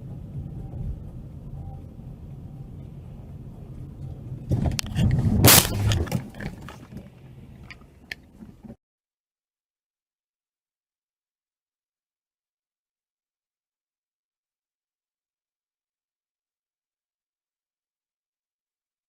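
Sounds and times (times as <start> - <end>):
road and engine rumble: 0.0 - 8.8
car collision crunch: 4.5 - 8.8
debris clattering: 4.7 - 7.8.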